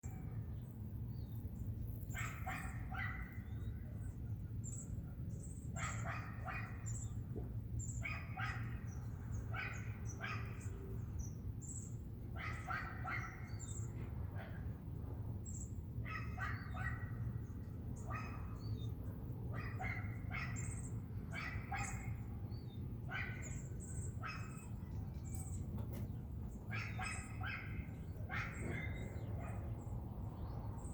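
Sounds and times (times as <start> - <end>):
dog barking: 2.1 - 3.4, 5.8 - 6.9, 8.0 - 8.9, 9.5 - 10.7, 12.4 - 13.8, 16.1 - 17.3, 18.1 - 18.6, 19.5 - 22.2, 23.1 - 24.7, 26.7 - 29.7.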